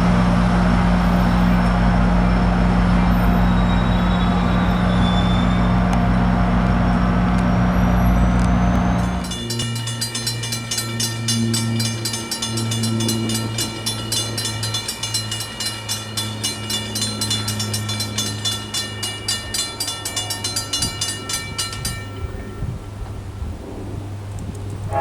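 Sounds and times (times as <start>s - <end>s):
diesel train engine humming: 0.0s - 25.0s
bell ringing rapidly: 9.0s - 22.7s.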